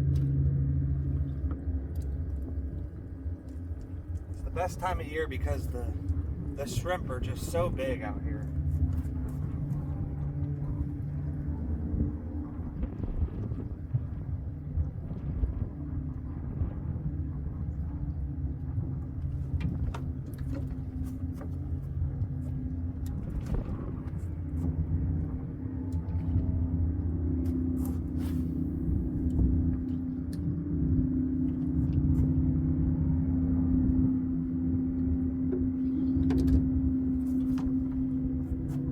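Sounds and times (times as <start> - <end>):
engine humming: 0.0 - 38.9.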